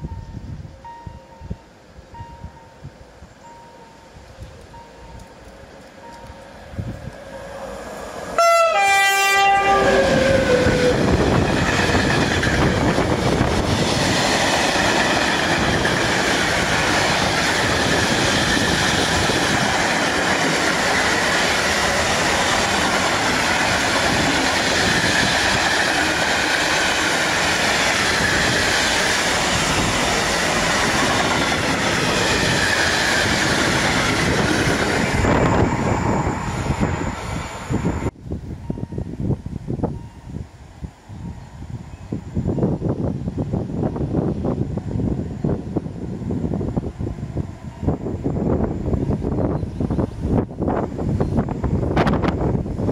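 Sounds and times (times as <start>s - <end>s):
freight train wheels rushing on rails: 1.8s - 52.9s
locomotive horn: 8.4s - 11.1s.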